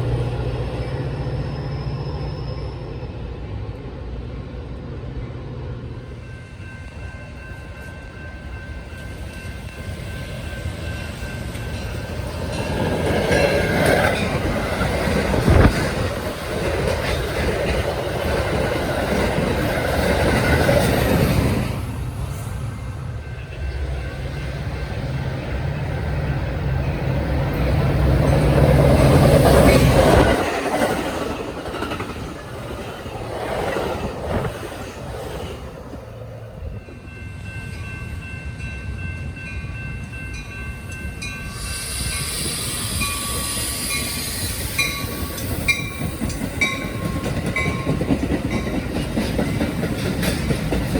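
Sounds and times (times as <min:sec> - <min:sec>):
diesel locomotive engine drone: 0:00.0 - 0:50.9
train wheels clattering on rail: 0:08.8 - 0:22.6, 0:25.8 - 0:36.2, 0:40.0 - 0:50.9.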